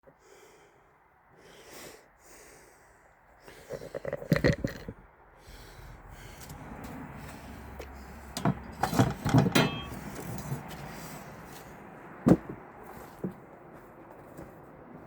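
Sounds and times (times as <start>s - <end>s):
hard objects knocking and clinking: 8.4s - 10.0s.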